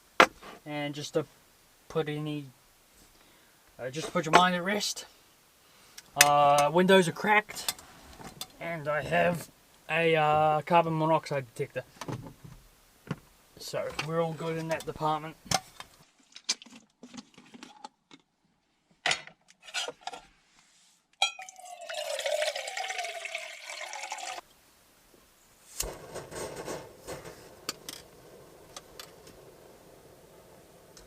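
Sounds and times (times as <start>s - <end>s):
faint steady hiss: 0.0s - 16.6s, 20.0s - 31.0s
water poured into a pot: 21.4s - 24.4s.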